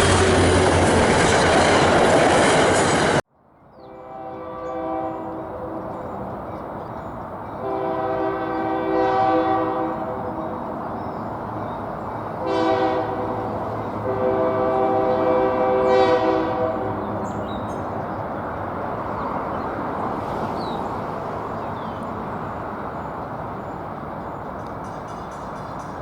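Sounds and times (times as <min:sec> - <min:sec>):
train rumbling past: 0:00.0 - 0:26.0
locomotive air horn blasts: 0:03.8 - 0:06.2, 0:07.5 - 0:10.7, 0:12.4 - 0:17.5.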